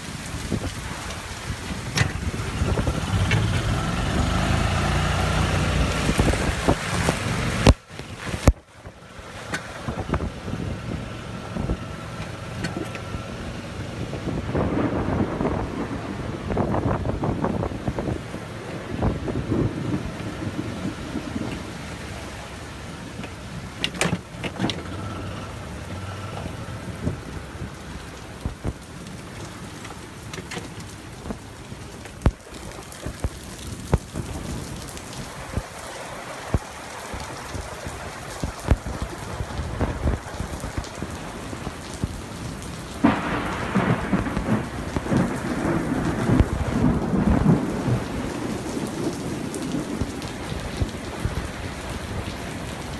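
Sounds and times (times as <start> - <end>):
steady rain: 0.0 - 52.9
rolling thunder: 14.1 - 22.0, 42.9 - 52.4.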